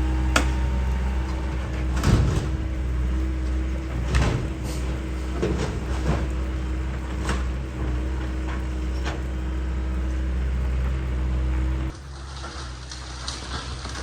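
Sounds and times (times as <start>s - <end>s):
excavator diesel engine running: 0.0s - 14.0s
sharp knocks and cracks of debris: 12.1s - 14.0s.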